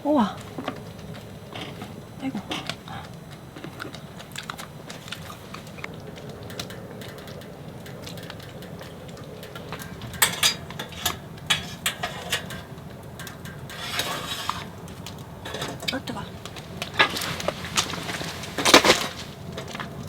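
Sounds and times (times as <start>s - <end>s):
steady low hum: 0.0s - 20.0s
rustle: 3.6s - 20.0s
dishes clicking and knocking: 7.9s - 14.7s.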